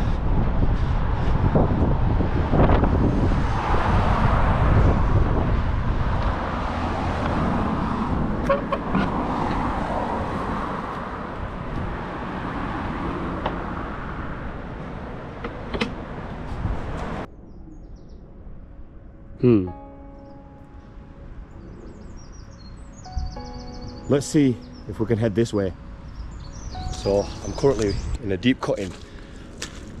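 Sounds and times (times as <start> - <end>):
car passing: 0.0 - 17.3, 20.4 - 30.0.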